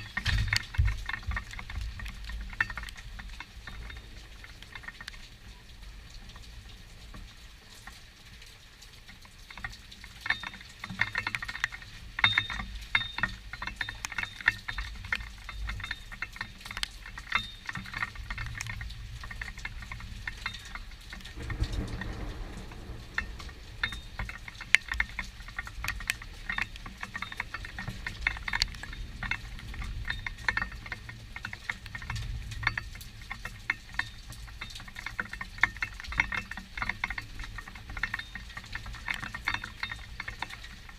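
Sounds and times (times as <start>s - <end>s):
raindrops pattering: 0.0s - 40.9s
distant thunder rumble: 20.9s - 26.3s.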